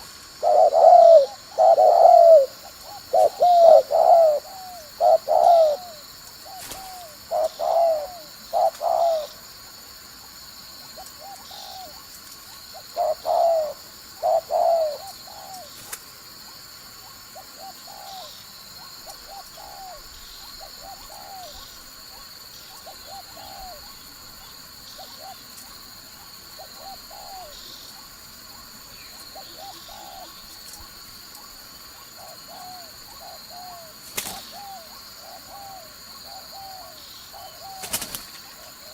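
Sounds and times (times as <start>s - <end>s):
dove cooing: 0.0s - 9.4s, 11.0s - 12.0s, 12.8s - 15.8s, 17.4s - 18.3s, 19.0s - 21.7s, 22.7s - 24.0s, 25.0s - 25.5s, 26.6s - 27.6s, 29.2s - 30.4s, 32.2s - 38.9s.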